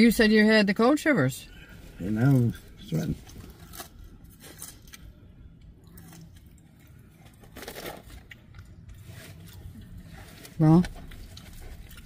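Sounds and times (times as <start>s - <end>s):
faint low hum: 0.0s - 12.0s
quiet chewing: 1.5s - 12.0s.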